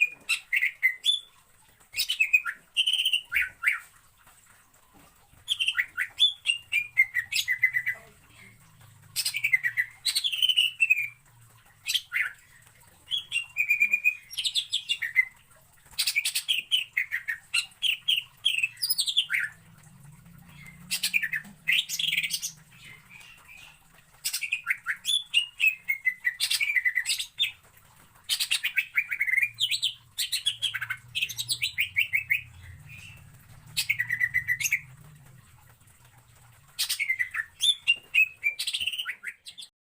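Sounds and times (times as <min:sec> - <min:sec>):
bird singing chattering notes: 0:05.5 - 0:11.2, 0:28.4 - 0:35.1.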